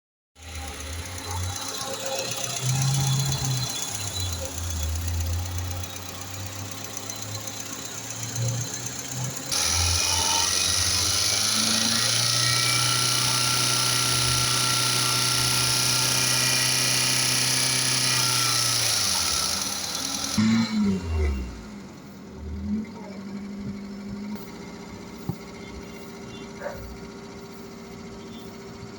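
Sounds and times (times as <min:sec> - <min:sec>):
car engine running: 0:00.4 - 0:28.9.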